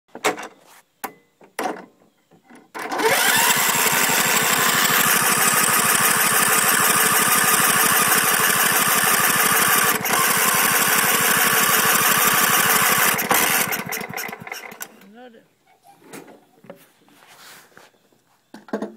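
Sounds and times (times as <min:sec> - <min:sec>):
lawn tractor engine cranking: 0:02.8 - 0:15.1.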